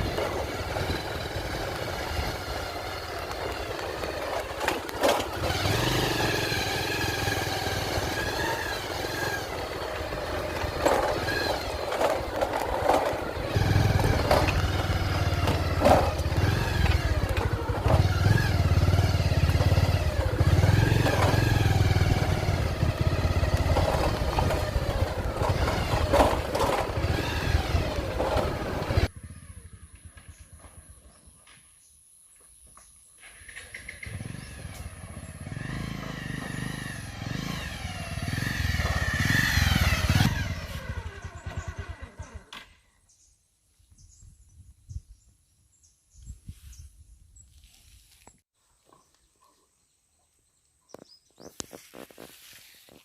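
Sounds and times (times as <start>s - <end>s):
vehicle engine running: 0.0s - 31.6s, 33.7s - 42.7s.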